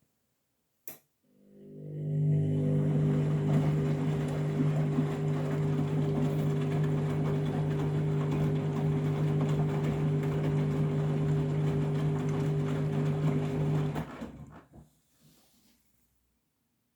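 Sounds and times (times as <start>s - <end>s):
washing machine running: 1.6s - 14.8s.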